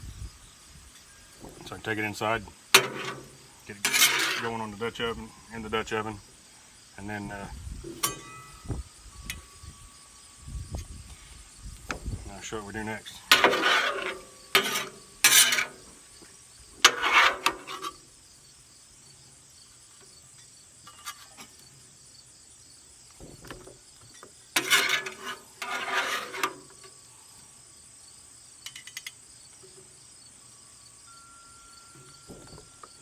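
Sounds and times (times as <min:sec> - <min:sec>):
insects buzzing: 0:00.0 - 0:33.0
metal spatula scraping griddle: 0:01.3 - 0:06.1, 0:07.2 - 0:09.6, 0:12.3 - 0:16.2, 0:16.8 - 0:18.1, 0:24.6 - 0:27.0.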